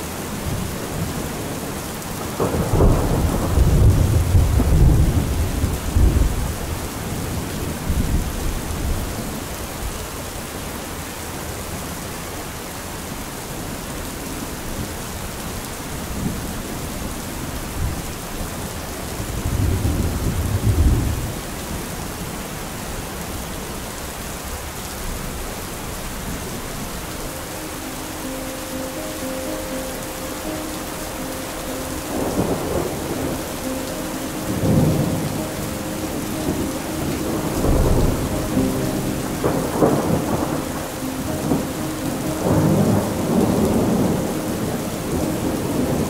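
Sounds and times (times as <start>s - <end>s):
heavy rain: 0.0s - 46.0s
rolling thunder: 2.4s - 9.0s
held musical notes: 26.9s - 46.0s.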